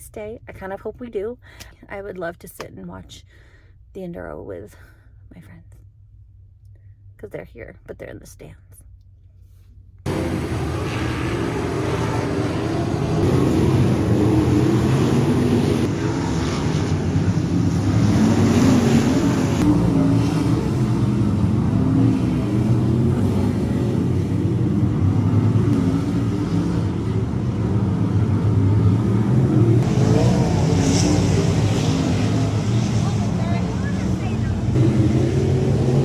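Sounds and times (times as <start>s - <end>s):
race car engines revving: 10.1s - 36.0s.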